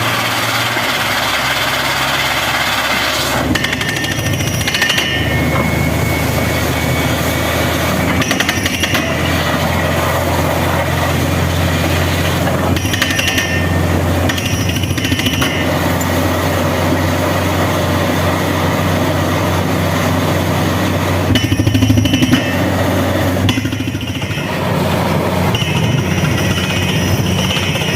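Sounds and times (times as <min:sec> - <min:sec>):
drilling rig engine drone: 0:00.0 - 0:27.9
rattling hammer: 0:02.9 - 0:05.7, 0:08.0 - 0:09.7, 0:12.2 - 0:16.3, 0:25.4 - 0:27.9.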